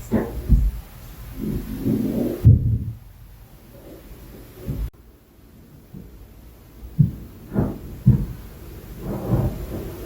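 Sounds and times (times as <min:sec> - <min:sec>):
muffled thuds through ceiling: 0:00.0 - 0:03.2, 0:03.8 - 0:05.0, 0:05.6 - 0:10.0.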